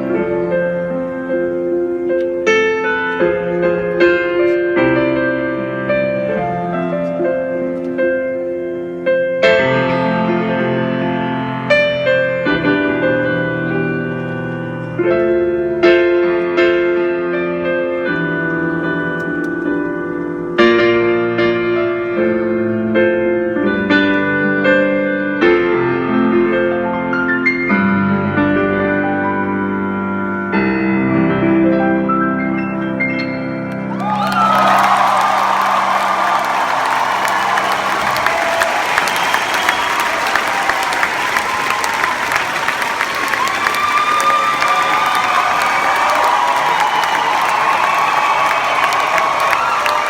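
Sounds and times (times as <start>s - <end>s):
solo piano chords: 0.0s - 41.9s.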